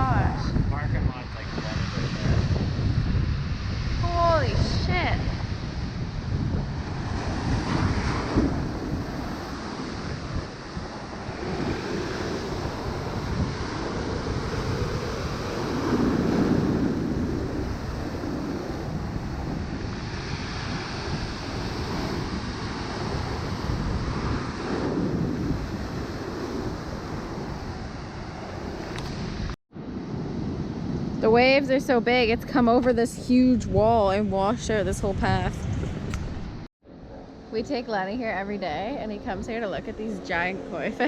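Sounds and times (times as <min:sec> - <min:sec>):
waves surging and breaking: 0:00.0 - 0:32.7
wind buffeting microphone: 0:00.0 - 0:41.0.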